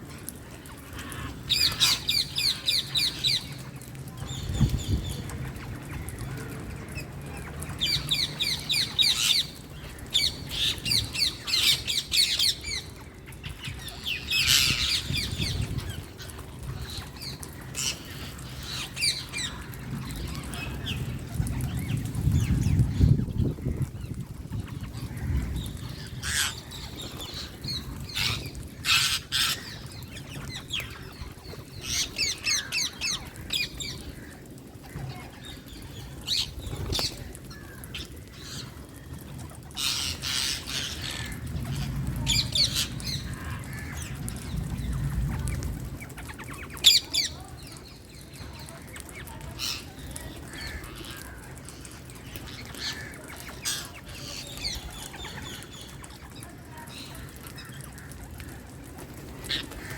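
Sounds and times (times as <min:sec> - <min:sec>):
parakeets screeching squawks: 0:13.7 - 0:22.5, 0:24.6 - 0:47.4.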